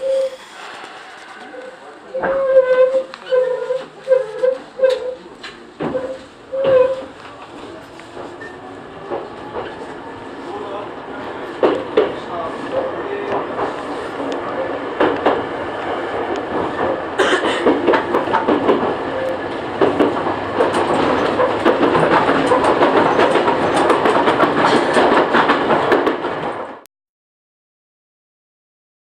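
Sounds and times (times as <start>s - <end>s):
wheels rumbling on rails: 0.0s - 26.8s
knocks and rattles: 19.8s - 26.6s.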